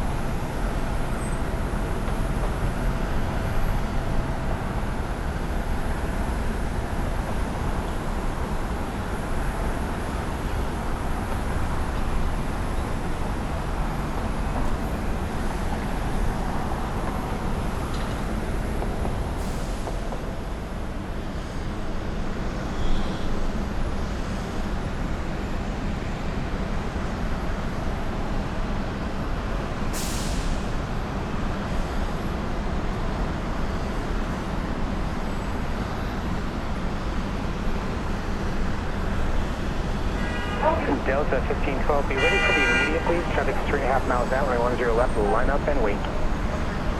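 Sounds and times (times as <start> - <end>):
jet airliner engines rumbling: 40.2 - 46.9.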